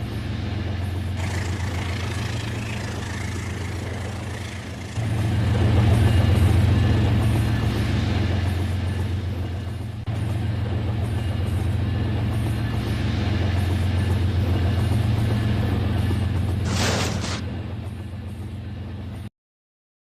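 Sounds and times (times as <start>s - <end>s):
toy train motor humming: 1.2s - 5.0s.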